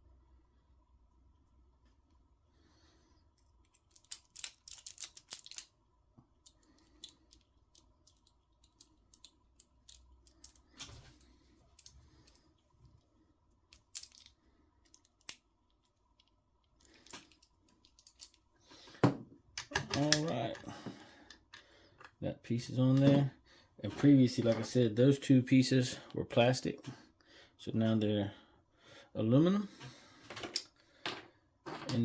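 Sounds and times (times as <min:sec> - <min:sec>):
small tools clicking and tapping: 0:03.4 - 0:12.6, 0:13.7 - 0:18.4.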